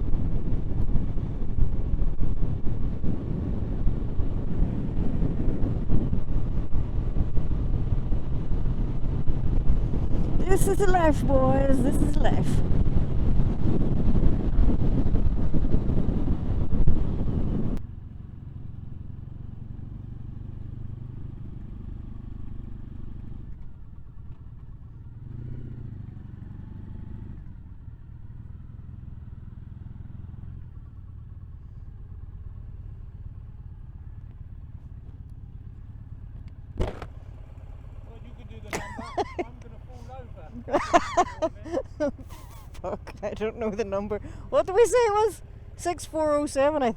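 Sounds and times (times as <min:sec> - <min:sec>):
wind noise on microphone: 0:00.0 - 0:17.8
motorcycle engine: 0:12.4 - 0:44.6, 0:45.3 - 0:46.9.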